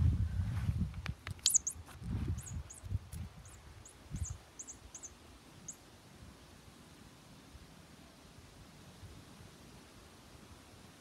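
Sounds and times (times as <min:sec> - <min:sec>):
high bird chirps: 0:01.4 - 0:05.8.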